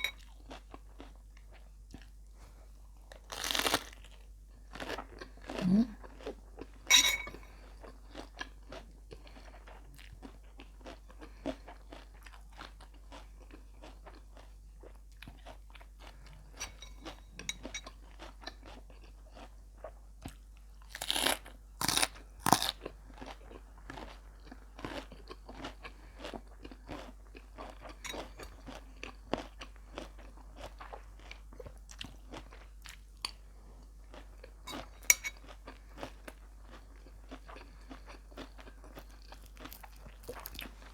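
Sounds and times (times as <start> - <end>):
person chewing and crunching food: 0.0 - 40.9.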